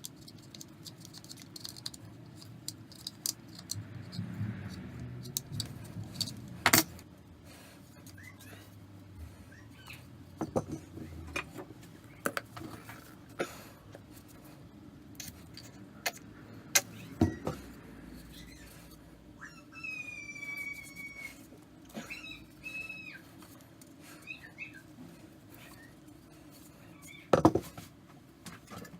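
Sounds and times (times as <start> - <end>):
small hard objects clicking: 0.0 - 4.3.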